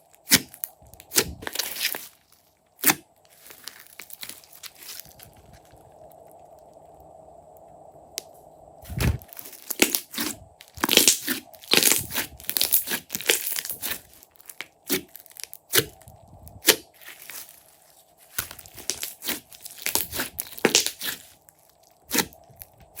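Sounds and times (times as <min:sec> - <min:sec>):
slime wet crackling: 0:09.2 - 0:16.0, 0:18.3 - 0:23.0.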